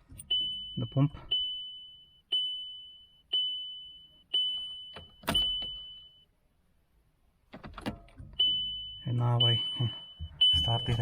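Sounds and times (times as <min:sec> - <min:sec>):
car dashboard warning chime: 0:00.2 - 0:06.3, 0:08.4 - 0:11.0.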